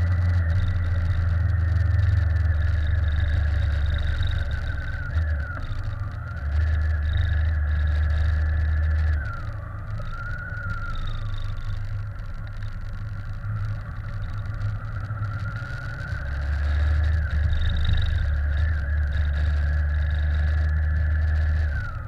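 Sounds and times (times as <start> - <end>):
bike riding whine: 0.0 - 22.0
wind rumble on microphone: 0.0 - 22.0.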